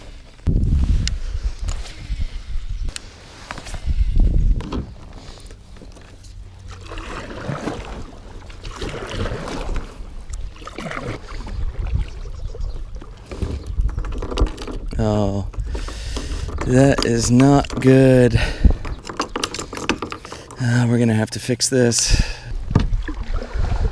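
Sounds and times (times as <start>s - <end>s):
water sloshing and dripping: 5.0s - 20.7s, 22.6s - 23.9s
kayak paddle swishing through water: 6.5s - 14.4s, 22.6s - 23.9s.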